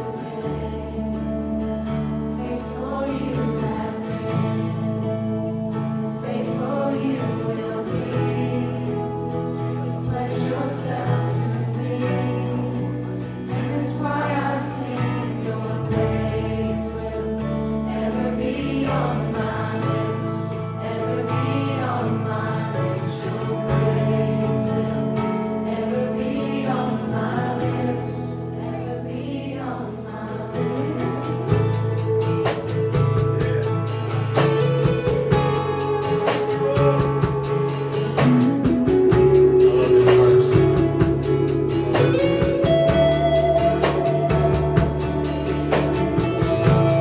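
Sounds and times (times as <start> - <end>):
band playing worship music: 0.0 - 47.0
congregation singing slow song: 0.0 - 47.0
drums and cymbals: 31.5 - 47.0.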